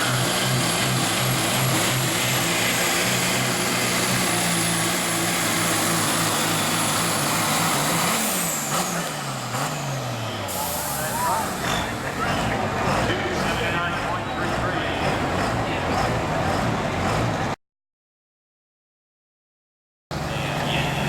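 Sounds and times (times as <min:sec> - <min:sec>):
diesel truck engine at high revs: 0:00.0 - 0:17.6, 0:20.1 - 0:21.0.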